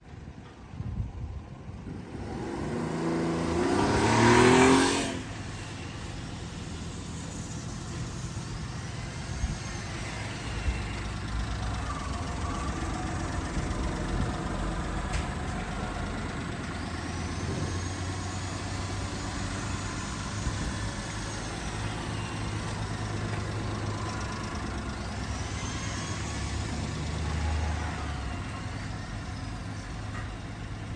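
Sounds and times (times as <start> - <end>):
small truck engine revving: 1.9 - 30.9
engine idling: 5.2 - 30.9.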